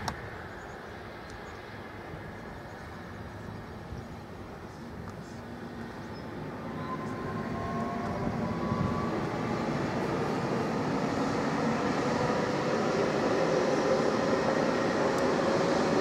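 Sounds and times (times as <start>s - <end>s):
train passing on rails: 0.0s - 16.0s
faint whining tone: 0.5s - 12.4s.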